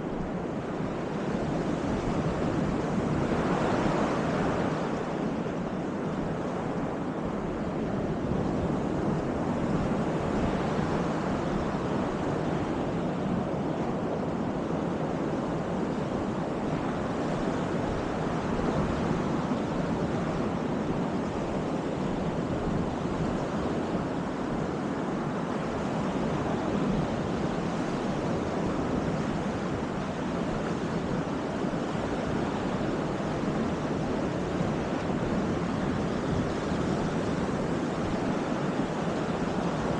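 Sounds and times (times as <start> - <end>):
wind: 0.0 - 39.9
surf breaking on beach: 16.3 - 39.9.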